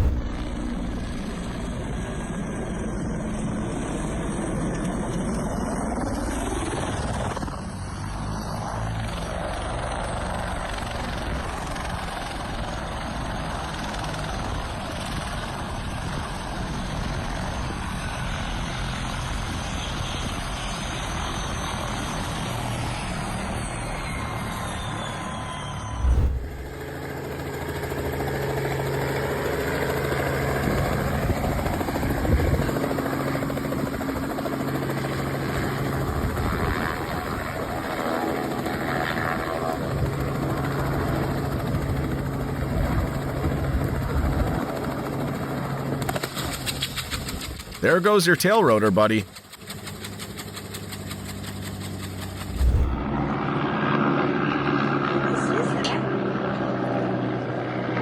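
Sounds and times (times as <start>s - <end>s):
loud bump: 0.0s - 0.6s, 26.0s - 26.8s
helicopter rotor and engine: 0.0s - 58.0s.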